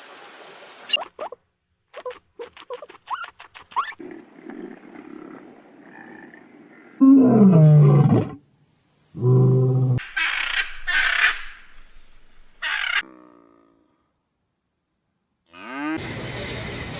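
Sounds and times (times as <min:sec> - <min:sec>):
large animal roaring: 0:04.1 - 0:08.4, 0:09.2 - 0:10.0.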